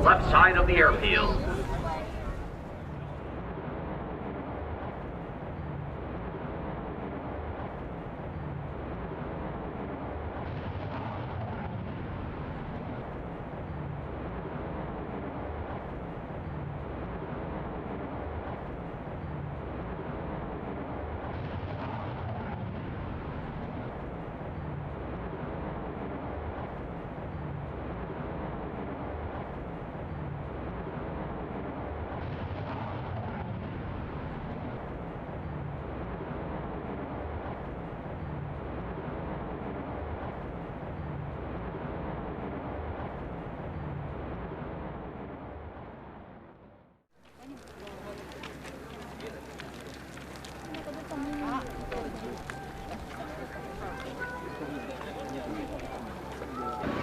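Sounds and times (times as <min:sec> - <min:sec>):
fighter jet engine rumble: 0:00.0 - 0:46.0.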